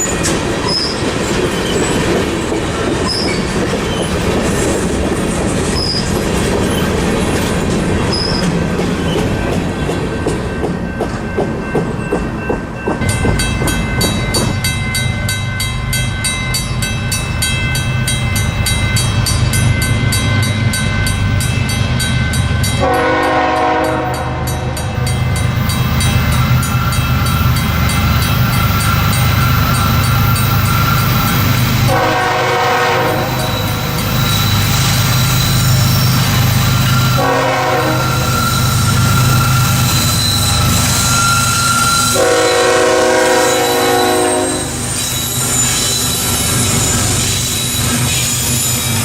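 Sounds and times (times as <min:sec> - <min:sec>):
train air horn blasts: 0:22.8 - 0:25.0, 0:31.9 - 0:33.8, 0:37.0 - 0:39.6, 0:41.8 - 0:44.8.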